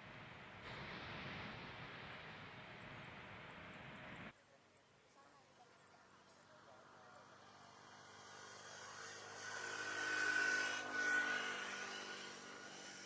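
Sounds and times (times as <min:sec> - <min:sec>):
high engine whine: 0:07.3 - 0:13.0.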